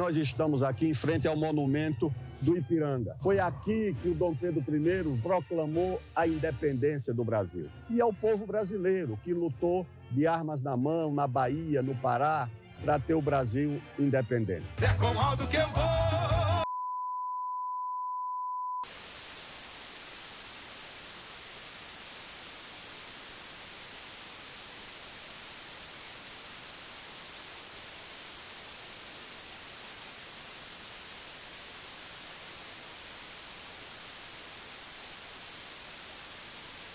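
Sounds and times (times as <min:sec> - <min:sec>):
white noise static: 0:18.8 - 0:36.9.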